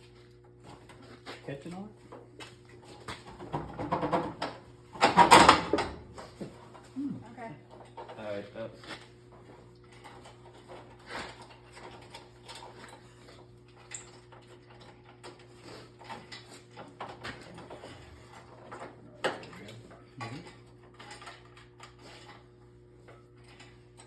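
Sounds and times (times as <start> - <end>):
engine and chain clinking and knocking: 9.8 - 22.4.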